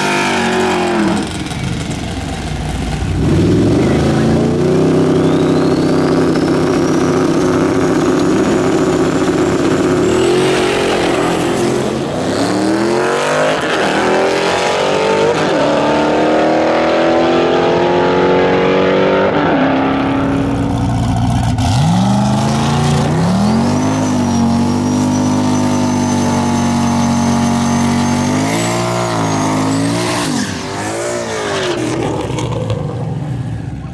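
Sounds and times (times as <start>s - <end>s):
engine accelerating hard: 0.0s - 33.9s
high turbo whistle: 3.8s - 15.7s, 21.8s - 31.8s.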